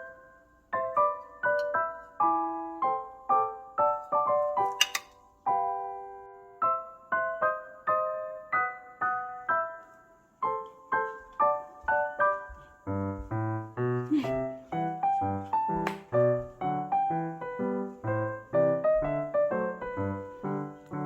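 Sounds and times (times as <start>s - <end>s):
gentle solo piano: 0.0s - 21.0s
sharp click: 4.7s - 5.2s.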